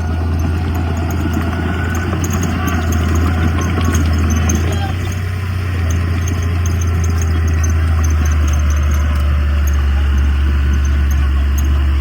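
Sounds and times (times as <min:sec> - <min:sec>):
heavy diesel engine droning: 0:00.0 - 0:12.0.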